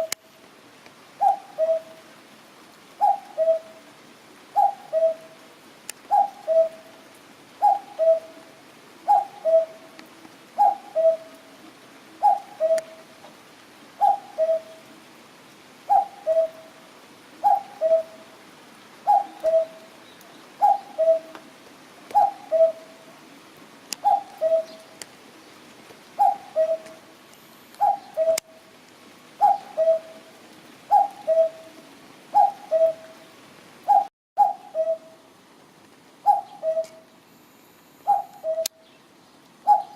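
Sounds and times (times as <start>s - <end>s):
cuckoo calling: 1.2s - 2.0s, 3.0s - 3.8s, 4.6s - 5.3s, 6.1s - 6.9s, 7.6s - 8.4s, 9.1s - 10.0s, 10.6s - 11.4s, 12.2s - 13.1s, 14.0s - 14.9s, 15.9s - 16.7s, 17.4s - 18.2s, 19.0s - 21.4s, 22.1s - 23.0s, 24.0s - 25.0s, 26.2s - 27.1s, 27.8s - 28.6s, 29.4s - 30.2s, 30.9s - 33.3s, 33.9s - 35.2s, 36.2s - 37.1s, 38.0s - 39.0s, 39.6s - 39.9s.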